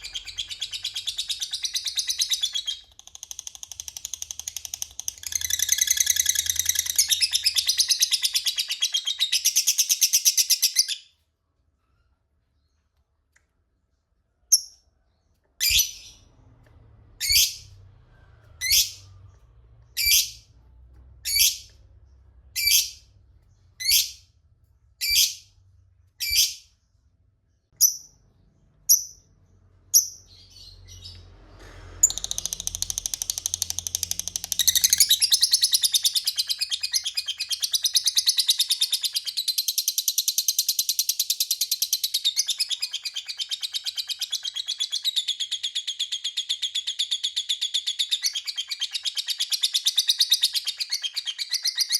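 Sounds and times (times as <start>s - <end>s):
lovebird calling: 0.0s - 11.0s.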